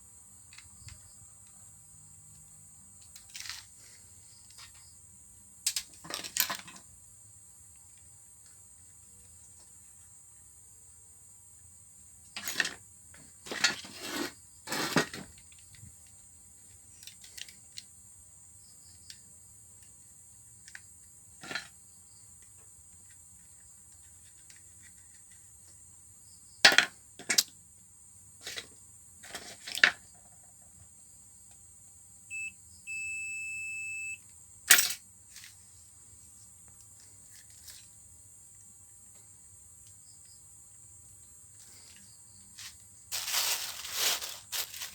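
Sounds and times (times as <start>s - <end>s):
short electronic beep: 32.3s - 34.2s
steady beep: 32.3s - 34.2s.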